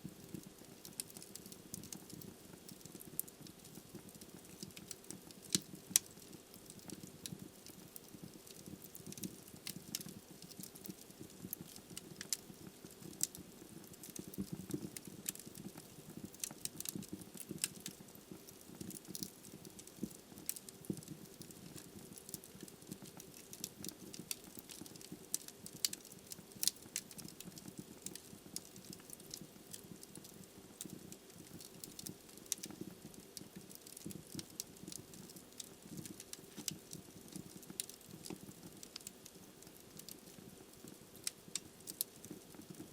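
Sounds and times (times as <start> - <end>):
log fire crackling and popping: 0.1 - 42.9.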